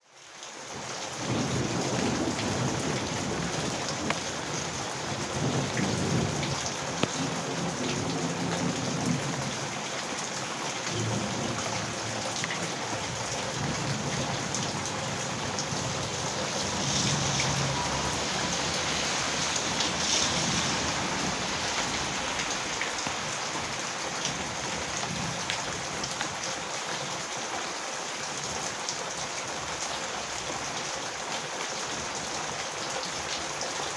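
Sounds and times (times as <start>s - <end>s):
heavy rain falling: 0.0s - 33.9s
low rolling thunder: 1.2s - 9.8s, 10.9s - 26.2s.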